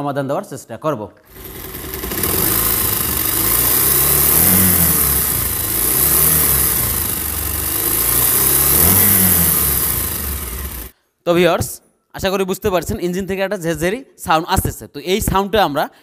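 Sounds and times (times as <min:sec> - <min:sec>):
engine top end rattling: 0:01.3 - 0:10.9
motorcycle engine revving: 0:01.3 - 0:10.9.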